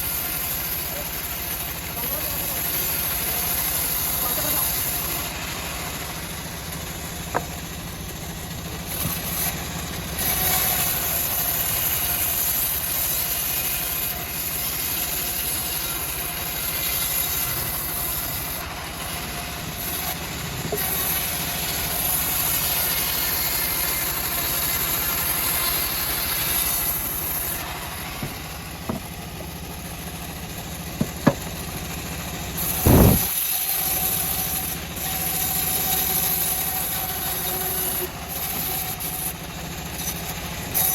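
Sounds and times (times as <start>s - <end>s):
bandsaw sawmill cutting wood: 0.0s - 40.9s
sharp knocks: 28.2s - 29.2s, 31.0s - 31.6s.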